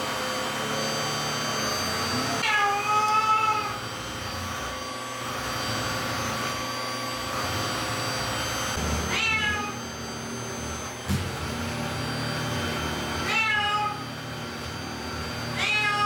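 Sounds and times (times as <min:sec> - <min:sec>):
cat meowing: 0:02.4 - 0:03.8, 0:09.1 - 0:09.8, 0:13.2 - 0:14.1, 0:15.6 - 0:16.0.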